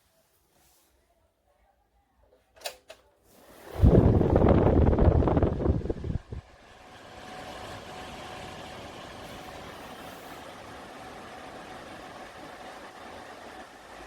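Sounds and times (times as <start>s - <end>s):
tower fan whirring: 3.4s - 14.0s.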